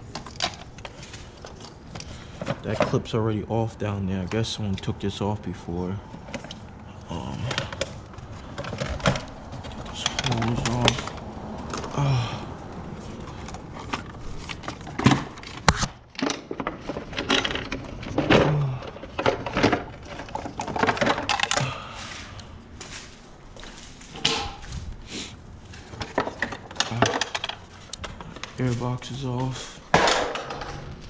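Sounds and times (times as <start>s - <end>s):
plastic parts knocking and scraping: 0.0s - 3.2s, 6.1s - 23.0s, 25.7s - 29.0s, 29.9s - 31.0s.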